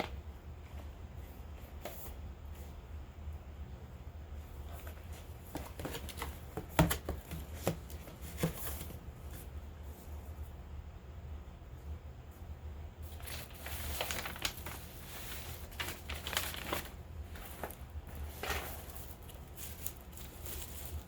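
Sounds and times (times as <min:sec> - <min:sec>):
steady low hum: 0:00.0 - 0:21.0
packaging crinkling: 0:13.1 - 0:21.0.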